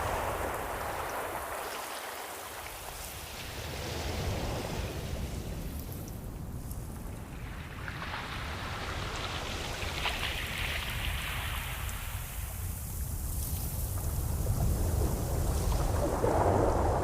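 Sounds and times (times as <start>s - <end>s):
ocean waves breaking: 0.0s - 6.5s.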